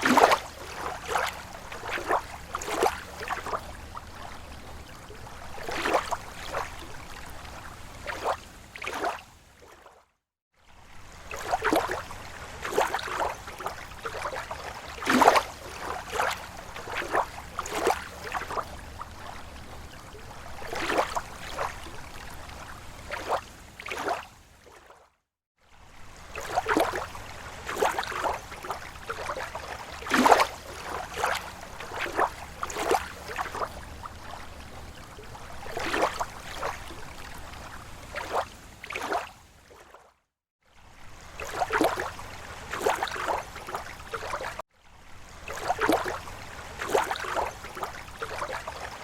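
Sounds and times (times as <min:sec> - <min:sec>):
small waves lapping on shore: 0:00.0 - 0:49.0.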